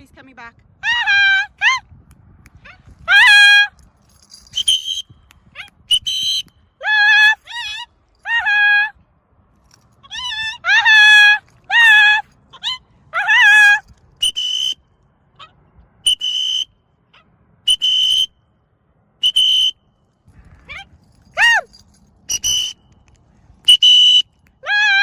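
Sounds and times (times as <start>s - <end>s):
whistle blasts: 4.4s - 6.7s, 14.2s - 14.9s, 16.0s - 16.8s, 17.7s - 18.4s, 19.2s - 19.9s, 22.3s - 22.9s, 23.6s - 24.4s.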